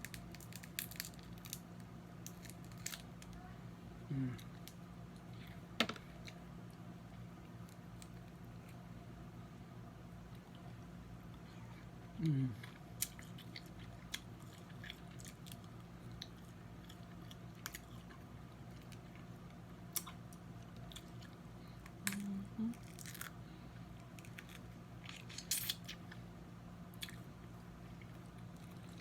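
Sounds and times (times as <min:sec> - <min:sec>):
crab shells cracking: 0:00.0 - 0:03.4, 0:19.9 - 0:23.4.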